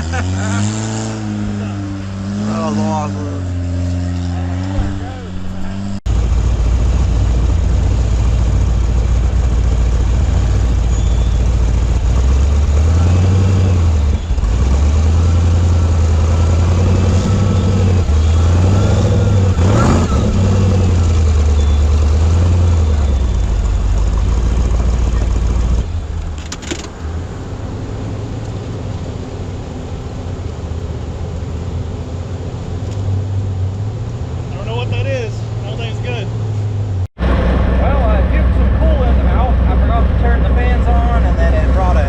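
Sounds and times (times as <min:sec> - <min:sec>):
buggy engine revving: 0:00.0 - 0:42.0
sharp knock: 0:04.7 - 0:06.0.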